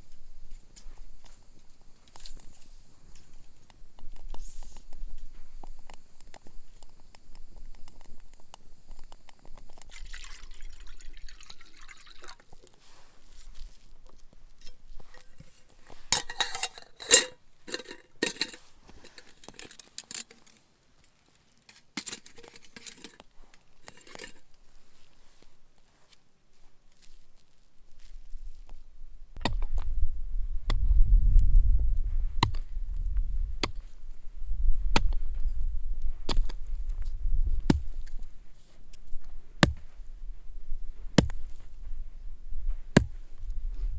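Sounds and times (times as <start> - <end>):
cookware clinking and knocking: 16.2 - 19.2.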